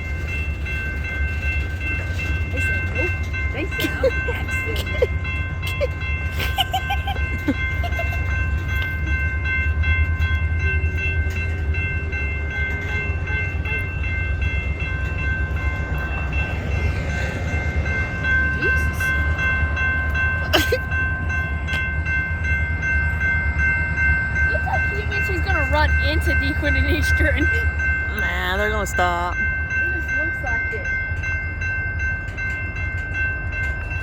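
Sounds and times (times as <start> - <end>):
locomotive high whine: 0.0 - 34.0
locomotive low rumble: 0.0 - 34.0.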